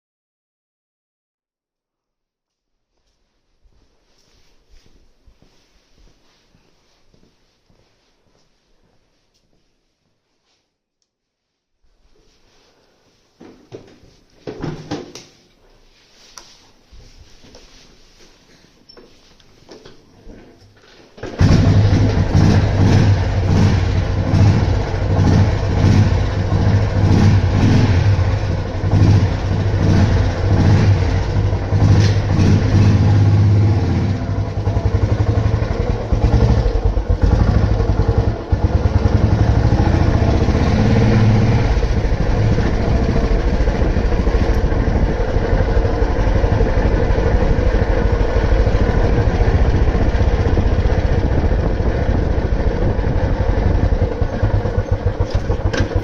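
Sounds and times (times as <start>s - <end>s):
motorcycle engine running: 21.3s - 56.0s.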